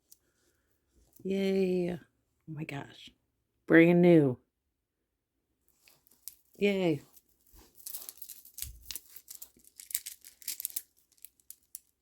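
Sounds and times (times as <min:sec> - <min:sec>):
bead bracelet rustling and ticking: 0:05.7 - 0:12.0.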